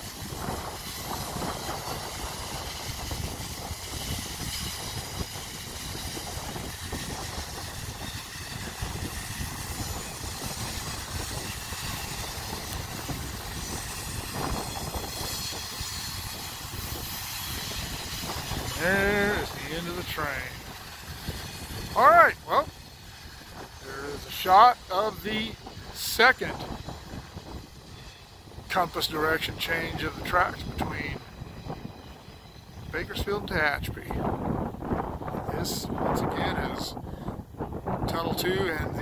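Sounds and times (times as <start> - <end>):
wheels clattering on rail: 0.0 - 22.1
freight train rumble: 0.0 - 39.0.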